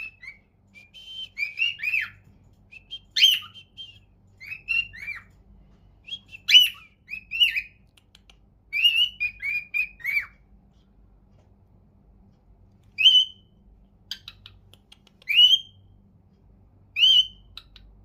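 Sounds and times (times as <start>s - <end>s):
cockatiel chirping: 0.0s - 2.3s, 3.1s - 3.7s, 4.4s - 5.3s, 6.2s - 10.4s, 13.0s - 13.5s, 14.1s - 15.8s, 17.0s - 17.9s.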